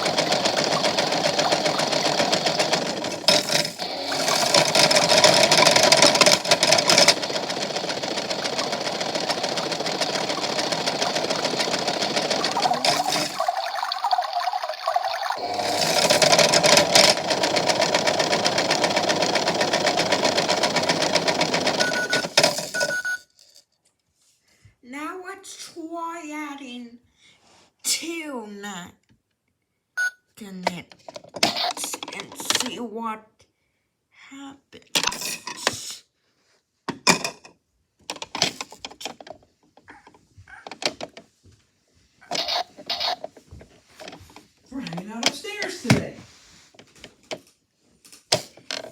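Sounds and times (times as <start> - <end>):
magnets rattling in drum: 0.0 - 14.1
toy washing machine motor: 0.0 - 23.2, 42.2 - 46.0.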